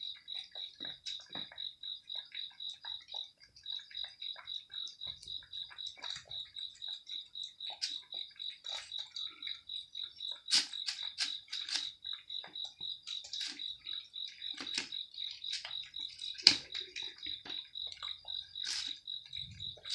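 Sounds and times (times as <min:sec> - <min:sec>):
crunchy chewing: 0:00.0 - 0:19.9
high-pitched chirping: 0:04.0 - 0:19.9.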